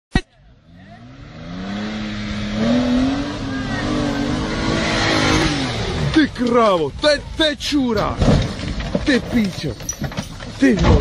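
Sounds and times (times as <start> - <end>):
car engine revving: 0.5 - 9.3.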